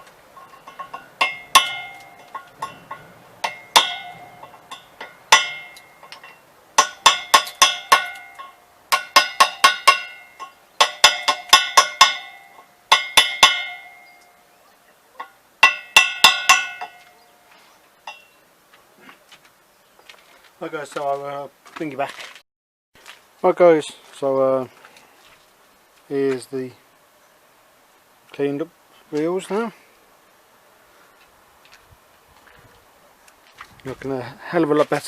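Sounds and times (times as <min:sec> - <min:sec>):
metal wheel struck ringing: 0:00.0 - 0:14.4, 0:15.2 - 0:17.2.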